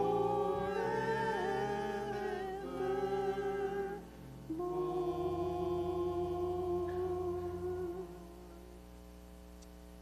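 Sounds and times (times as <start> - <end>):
worship singing held note: 0.0 - 8.8
sustained accompaniment chords: 0.0 - 9.0.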